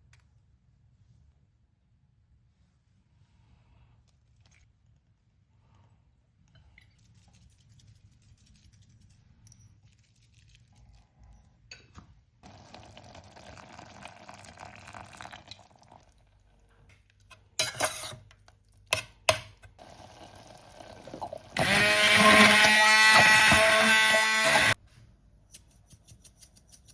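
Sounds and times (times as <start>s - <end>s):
liquid pouring: 12.4s - 16.6s, 19.8s - 21.6s.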